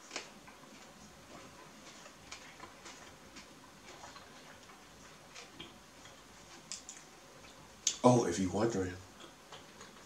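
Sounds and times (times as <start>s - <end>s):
person chewing with mouth closed: 0.0s - 7.6s.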